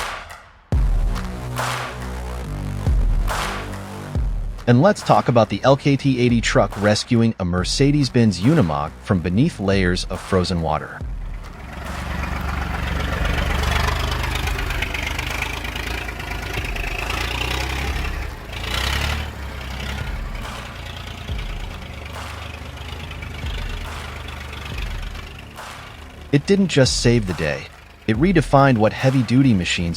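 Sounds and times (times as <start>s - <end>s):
rushing mechanical noise: 7.9s - 29.9s
heavy vehicle engine running: 8.1s - 29.9s.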